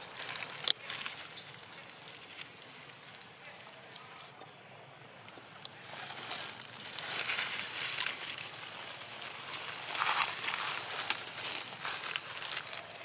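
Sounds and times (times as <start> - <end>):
rustling and crackling: 0.0 - 13.0.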